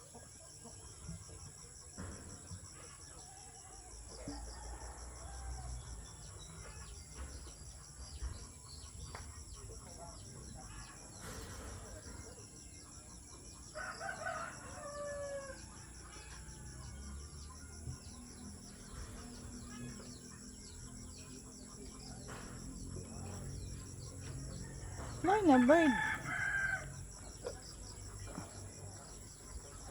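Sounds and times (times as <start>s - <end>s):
rooster crowing: 13.8s - 16.8s, 24.6s - 27.1s.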